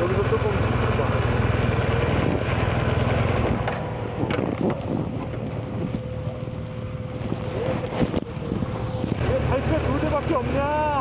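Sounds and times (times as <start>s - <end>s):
motorcycle engine rumbling: 0.0s - 9.6s
wind buffeting microphone: 1.2s - 9.2s.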